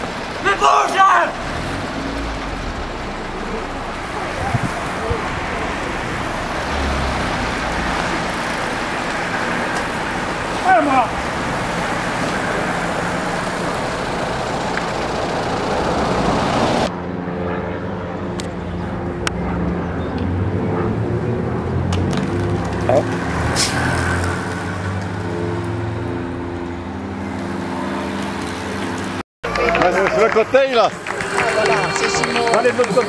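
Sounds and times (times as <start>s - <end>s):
rushing wind: 0.0s - 29.2s
road noise: 0.0s - 33.0s
vehicle engine running: 1.2s - 16.9s.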